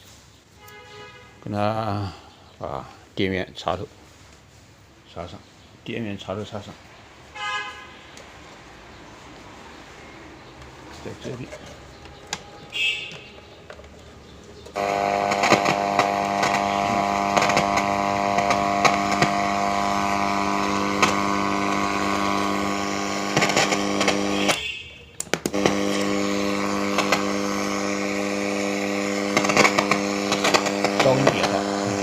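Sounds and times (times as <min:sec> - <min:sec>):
loudspeaker crackles: 0:14.7 - 0:24.8, 0:25.5 - 0:32.0
loudspeaker buzzing drone: 0:14.8 - 0:24.6, 0:25.6 - 0:32.0.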